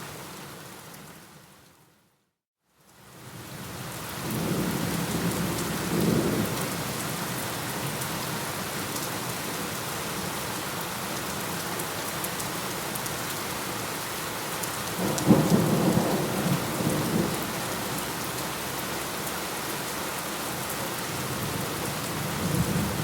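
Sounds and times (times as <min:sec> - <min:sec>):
rain falling: 0:02.8 - 0:23.0.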